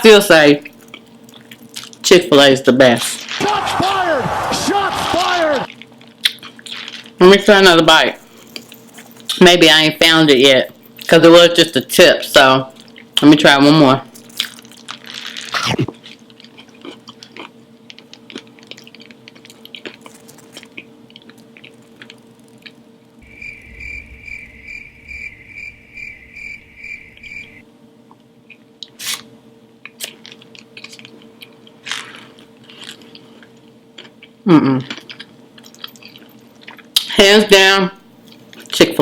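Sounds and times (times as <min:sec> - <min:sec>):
chewing crunchy food: 0:00.6 - 0:02.0, 0:05.7 - 0:07.2, 0:08.2 - 0:09.4, 0:14.1 - 0:22.9, 0:28.5 - 0:37.1, 0:38.2 - 0:38.8
steady low hum: 0:03.2 - 0:31.8.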